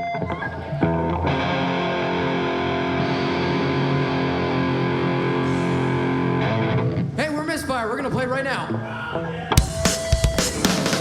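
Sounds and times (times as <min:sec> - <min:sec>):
distorted electric guitar chord: 0:00.0 - 0:07.2.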